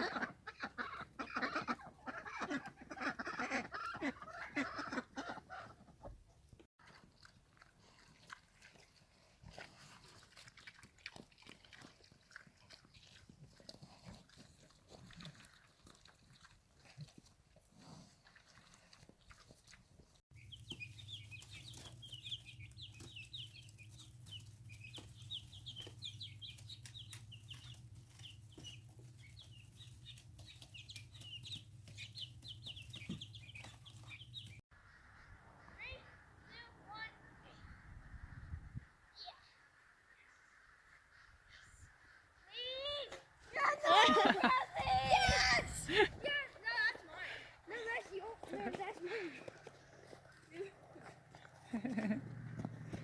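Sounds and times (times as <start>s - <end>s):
chicks peeping: 20.4s - 35.7s.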